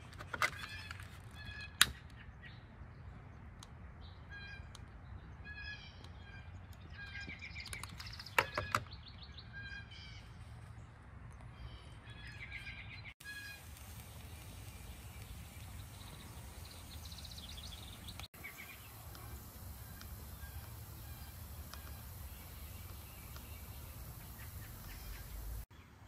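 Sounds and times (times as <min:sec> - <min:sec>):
songbird chirping: 0:00.5 - 0:26.0
sharp clicks: 0:13.7 - 0:25.6.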